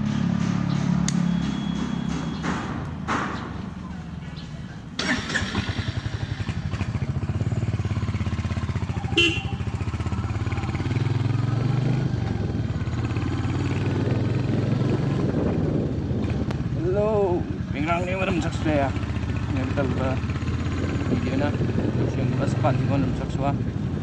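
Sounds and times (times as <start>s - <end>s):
motorcycle engine running: 5.0s - 17.4s, 18.0s - 24.0s.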